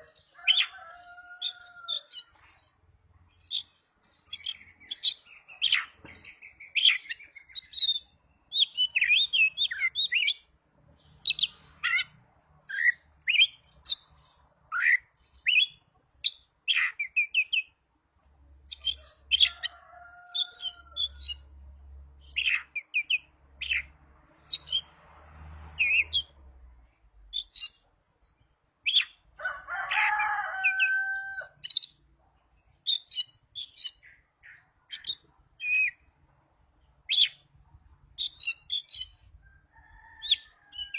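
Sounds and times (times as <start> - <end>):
bird chirping and whistling: 4.3 - 10.4, 22.4 - 23.9, 28.9 - 29.2, 32.8 - 34.1, 34.9 - 36.0, 37.1 - 37.4, 38.2 - 39.2.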